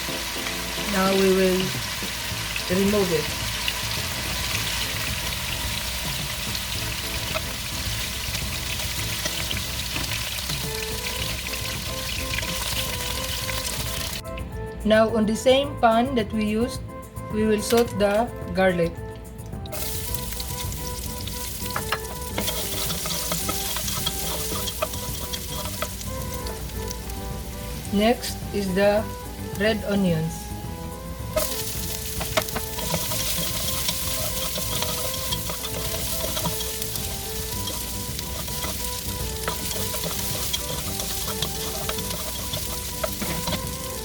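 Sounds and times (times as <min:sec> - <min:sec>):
garlic sizzling in hot oil: 0:00.0 - 0:14.3, 0:19.7 - 0:44.0
utensil clicking against pan: 0:07.1 - 0:07.6, 0:08.3 - 0:14.2, 0:19.6 - 0:27.1, 0:31.3 - 0:44.0.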